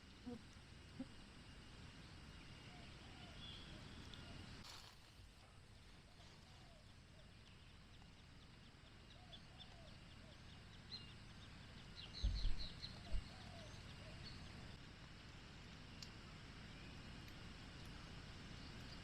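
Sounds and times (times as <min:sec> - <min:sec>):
birds chirping: 0:06.7 - 0:14.7
dull low thumps: 0:12.2 - 0:13.3.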